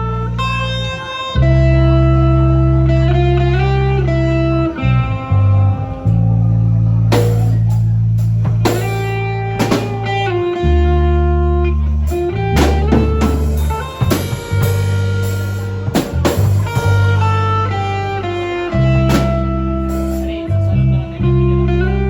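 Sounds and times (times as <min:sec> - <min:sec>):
bass line: 0:00.0 - 0:22.0
electric guitar: 0:00.0 - 0:22.0
drum kit: 0:07.0 - 0:10.3, 0:12.1 - 0:18.0, 0:18.7 - 0:20.6.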